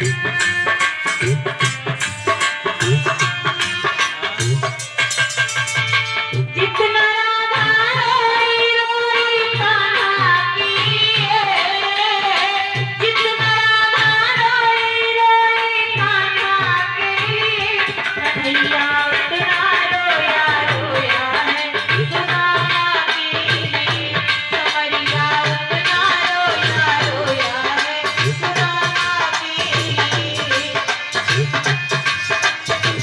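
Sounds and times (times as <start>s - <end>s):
hand drum beat: 0.0s - 6.6s.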